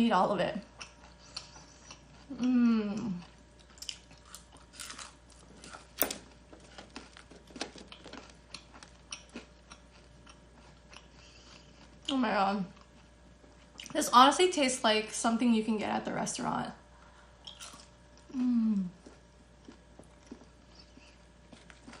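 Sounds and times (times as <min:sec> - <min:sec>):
chewing and crunching: 0:00.6 - 0:14.0, 0:17.0 - 0:18.4, 0:19.0 - 0:22.0
person humming: 0:02.3 - 0:03.2, 0:18.3 - 0:19.0.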